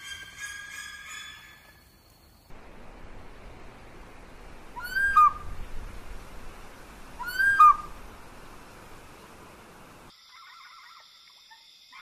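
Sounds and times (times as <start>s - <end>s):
steady hiss: 2.2s - 10.1s.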